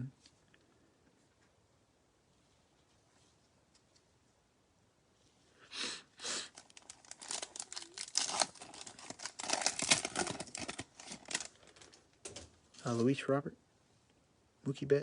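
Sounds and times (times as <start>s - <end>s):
foil wrapper tearing and crinkling: 6.4s - 12.0s.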